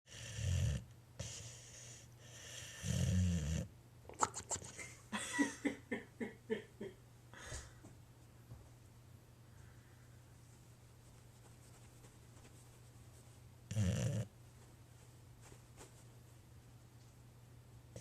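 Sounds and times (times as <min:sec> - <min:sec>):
dog snoring: 0:00.1 - 0:03.7, 0:13.7 - 0:14.3.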